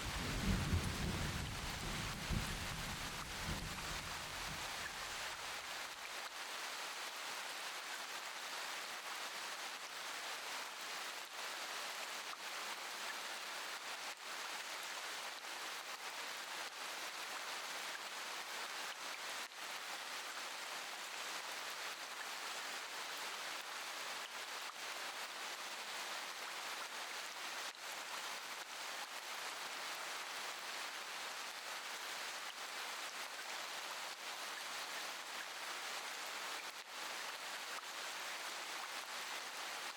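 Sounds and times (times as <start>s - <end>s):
rain falling: 0.0s - 8.0s.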